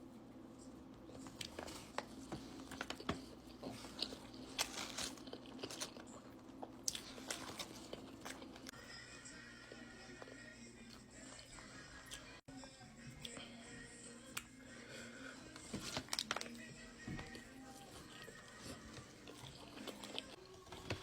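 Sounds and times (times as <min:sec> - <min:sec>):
crunchy food being chewed: 0:01.1 - 0:08.8, 0:17.2 - 0:21.0.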